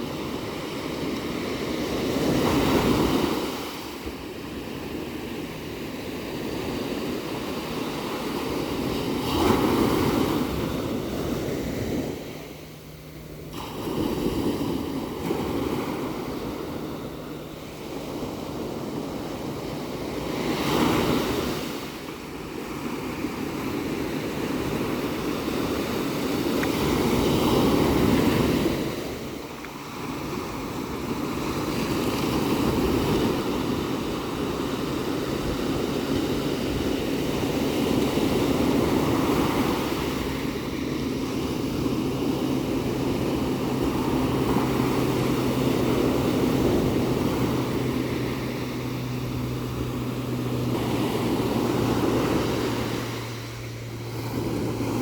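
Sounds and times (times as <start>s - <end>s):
low steady hum: 0.0s - 55.0s
ocean waves breaking: 0.0s - 55.0s.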